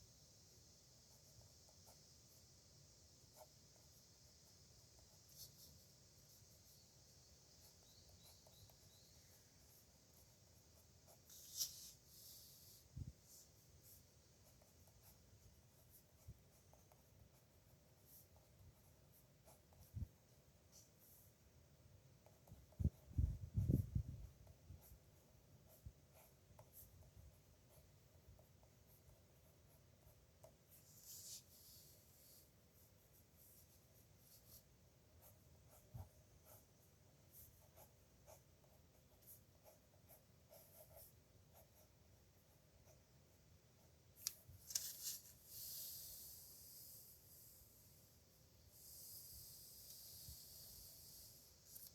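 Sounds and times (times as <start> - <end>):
pen nib scratching on paper: 3.3 - 6.9, 7.6 - 21.4, 48.7 - 51.9.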